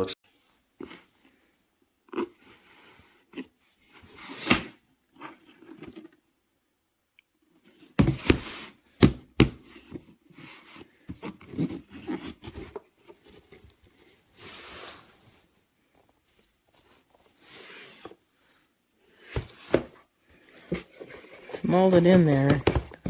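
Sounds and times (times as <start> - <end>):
case rubbing and scraping: 7.8 - 23.0
case knocking and clunking: 20.7 - 23.0.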